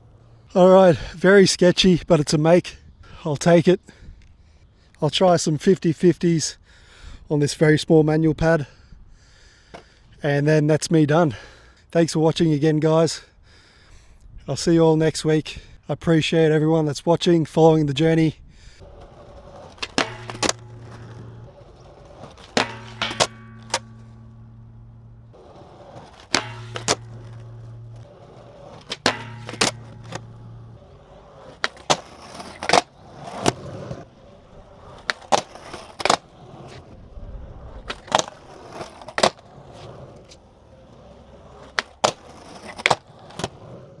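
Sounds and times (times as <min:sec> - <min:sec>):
skateboard wheels rolling on concrete: 0:09.6 - 0:11.4, 0:16.1 - 0:44.0
skateboard deck clacks: 0:18.8 - 0:36.9, 0:37.8 - 0:44.0.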